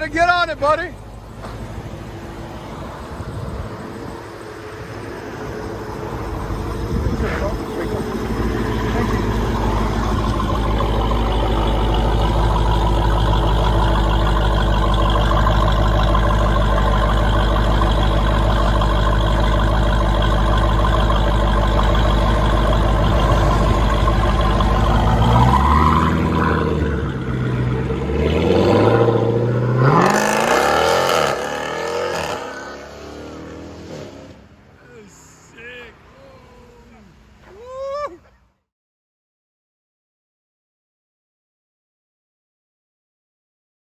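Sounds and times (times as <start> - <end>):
car engine running hard: 0.0 - 34.6.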